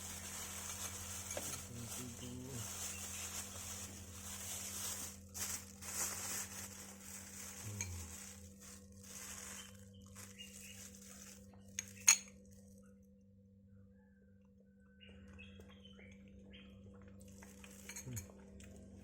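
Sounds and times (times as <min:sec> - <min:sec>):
spoon scraping and clinking on dish: 0:00.7 - 0:01.7.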